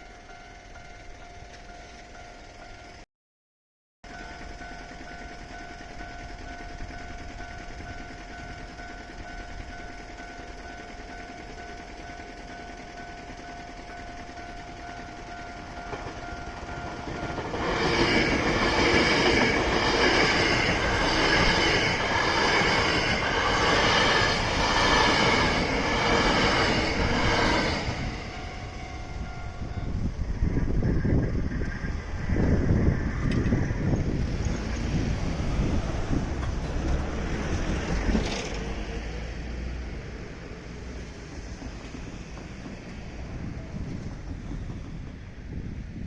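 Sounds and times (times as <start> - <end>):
level crossing alarm ringing: 0.0 - 3.0, 4.0 - 30.3
train wheels clacking over rail joints: 6.0 - 29.4, 35.9 - 38.9, 39.9 - 45.9.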